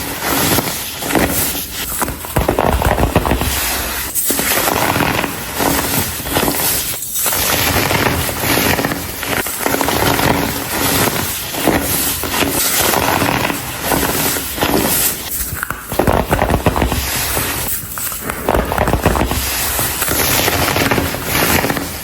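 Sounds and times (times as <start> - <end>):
baking soda blocks crunching: 0.0 - 22.0.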